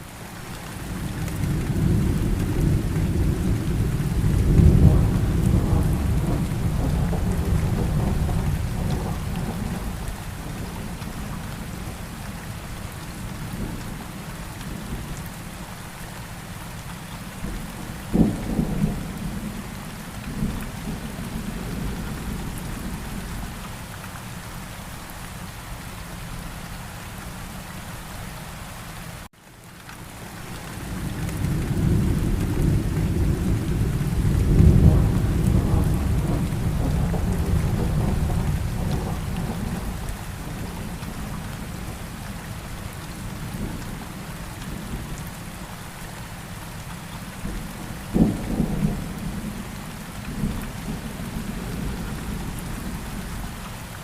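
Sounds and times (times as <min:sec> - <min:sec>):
steady rain: 0:00.0 - 0:54.0
low rolling thunder rumble: 0:01.0 - 0:12.1, 0:17.4 - 0:23.6, 0:30.8 - 0:45.2, 0:47.4 - 0:53.5
sharp thunderclap: 0:04.2 - 0:09.9, 0:31.4 - 0:40.1.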